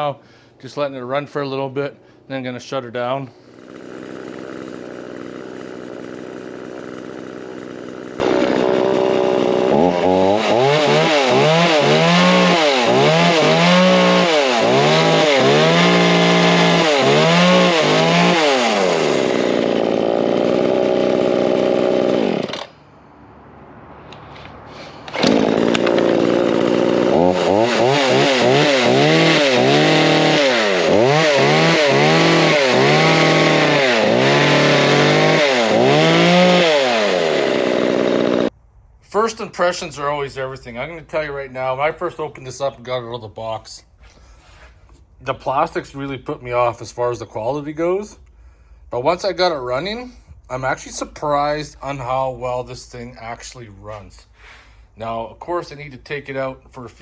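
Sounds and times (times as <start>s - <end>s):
chainsaw running and revving: 3.4s - 22.8s, 24.8s - 38.5s.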